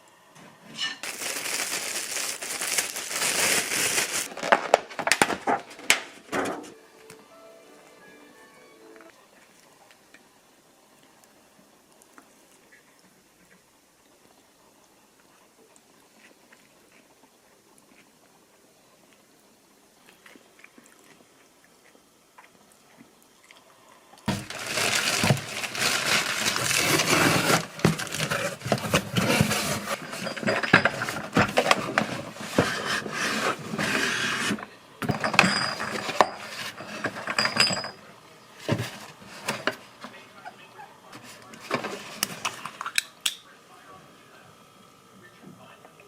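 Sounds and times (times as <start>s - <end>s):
dishes and utensils clattering: 24.3s - 39.8s.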